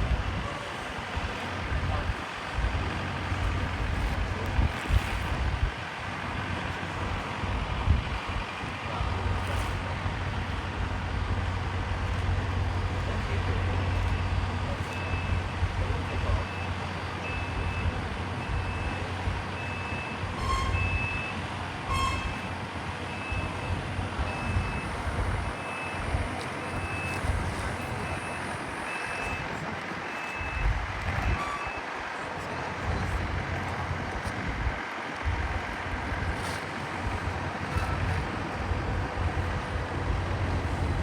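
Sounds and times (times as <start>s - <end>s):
steady low rumble: 0.0s - 16.4s
reversing alarm beeping: 14.0s - 29.5s, 30.1s - 31.9s.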